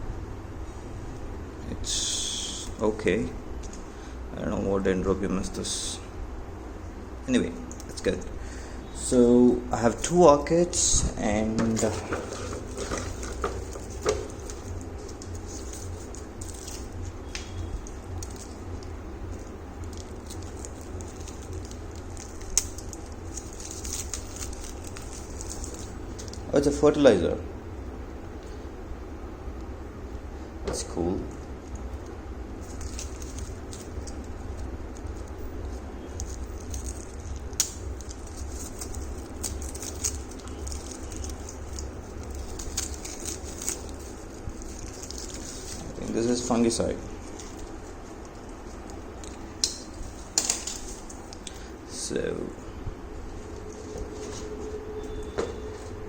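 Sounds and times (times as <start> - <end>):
low room hum: 0.0 - 56.0
packaging rustling: 11.7 - 26.5, 32.6 - 51.7.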